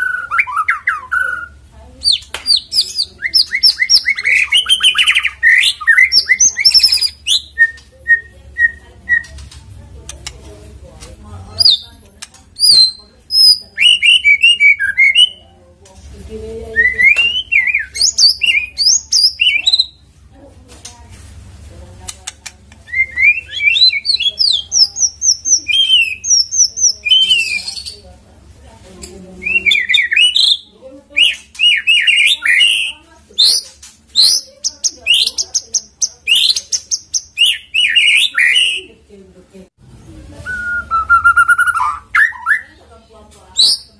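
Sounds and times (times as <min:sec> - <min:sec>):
bird whistling song: 0:00.0 - 0:09.4, 0:12.6 - 0:15.4, 0:16.7 - 0:20.0, 0:22.9 - 0:28.0, 0:29.4 - 0:38.9, 0:40.4 - 0:42.8, 0:43.6 - 0:43.9.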